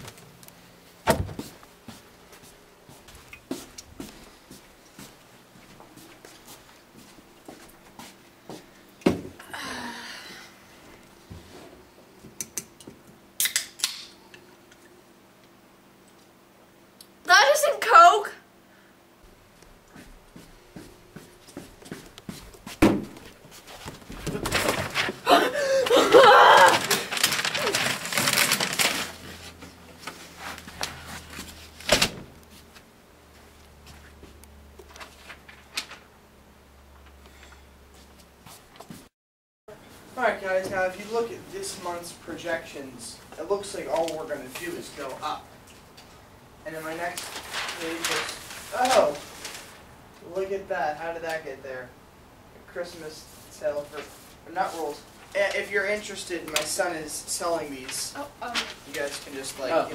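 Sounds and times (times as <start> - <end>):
thud: 22.8 - 23.2
person's wavering vocal outburst: 25.2 - 27.8.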